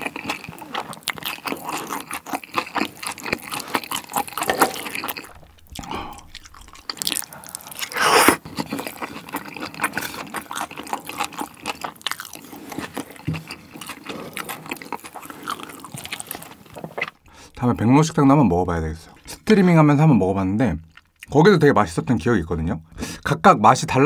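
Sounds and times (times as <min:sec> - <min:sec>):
chewing and smacking: 0:00.0 - 0:17.3, 0:20.8 - 0:21.3.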